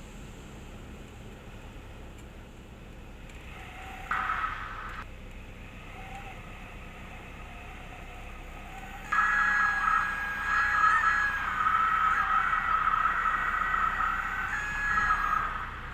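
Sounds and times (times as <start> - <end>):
airplane cockpit engine noise: 0.0 - 15.9
steady high tone: 3.5 - 5.1, 5.9 - 15.9.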